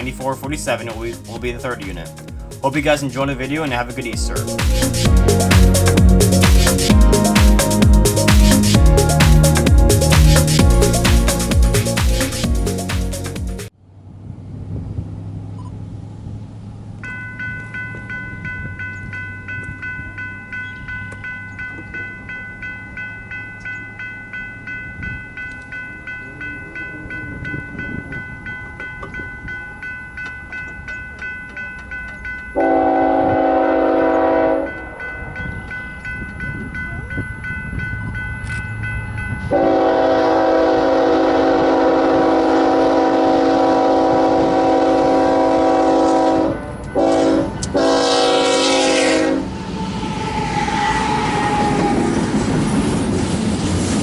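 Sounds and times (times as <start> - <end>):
crossing bell ringing: 0.0 - 13.4, 17.0 - 51.3
train rumbling: 0.0 - 13.8, 16.1 - 54.0
train horn blasts: 32.6 - 35.0, 39.5 - 52.2.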